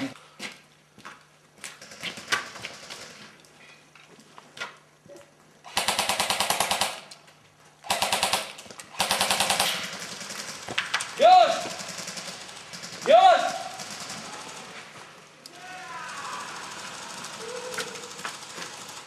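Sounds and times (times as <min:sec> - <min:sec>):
rapid full-auto gunfire bursts: 0:01.8 - 0:03.2, 0:05.7 - 0:07.1, 0:07.9 - 0:14.8, 0:16.4 - 0:19.0.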